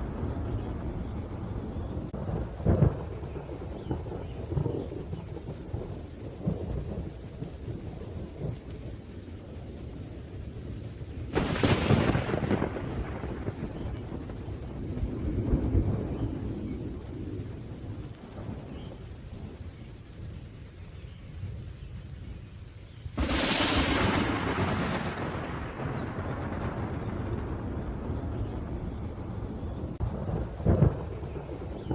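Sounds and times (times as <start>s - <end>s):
sharp thunderclap: 0.0s - 5.6s, 11.3s - 18.9s, 23.2s - 31.9s
rolling thunder: 0.0s - 20.6s, 23.1s - 31.9s
rain: 0.0s - 31.9s.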